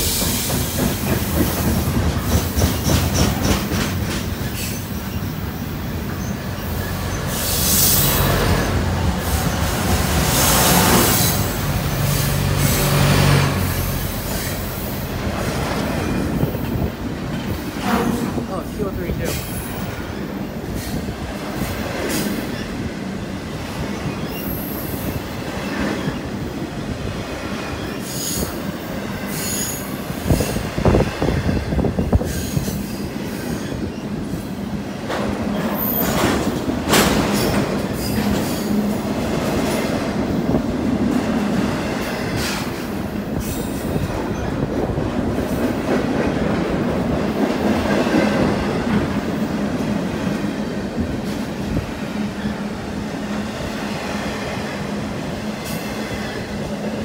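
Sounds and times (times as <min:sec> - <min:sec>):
clacks over rail joints: 0:00.0 - 0:04.8, 0:35.0 - 0:40.2
steel wheels rolling on rail: 0:00.0 - 0:57.0.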